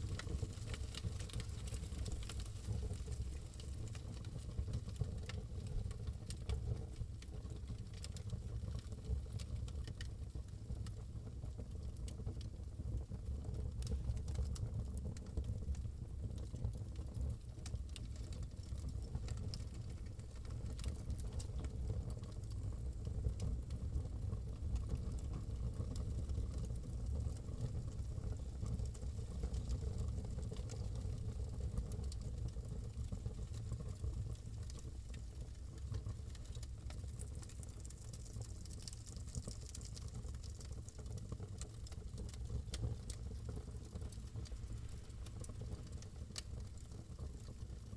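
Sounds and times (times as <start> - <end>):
wood fire crackling: 0.0 - 11.0, 13.1 - 47.9
sharp pops and snaps: 34.6 - 47.6.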